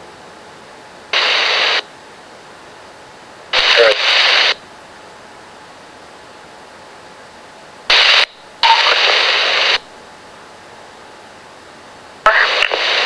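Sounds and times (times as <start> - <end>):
radio static bursts: 1.2 - 1.9, 3.6 - 4.6, 7.9 - 9.9, 12.3 - 13.0.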